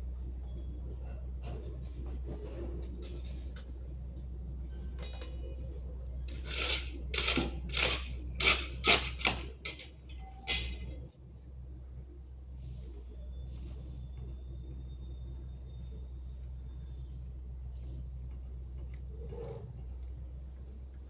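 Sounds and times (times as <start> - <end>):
hand tool scraping strokes: 6.3 - 9.9.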